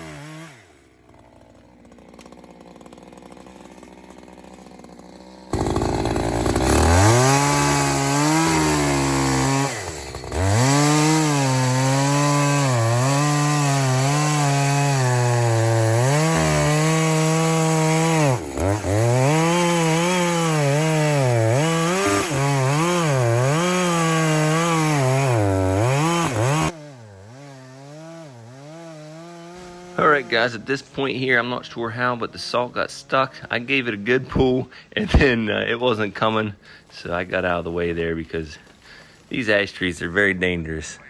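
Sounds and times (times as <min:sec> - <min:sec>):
chainsaw cutting wood: 0:00.0 - 0:40.6.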